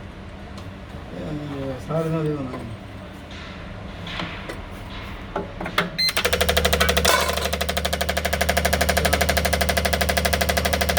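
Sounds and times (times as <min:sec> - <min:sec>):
fuel injectors clicking: 0:06.1 - 0:10.9
steady machine hum: 0:06.1 - 0:10.9.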